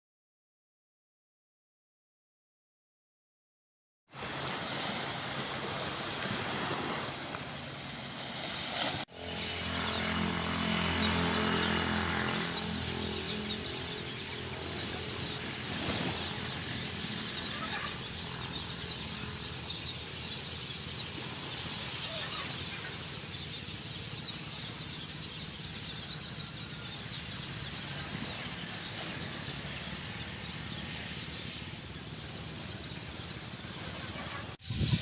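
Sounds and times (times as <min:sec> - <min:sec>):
motor engine humming: 0:09.1 - 0:34.6.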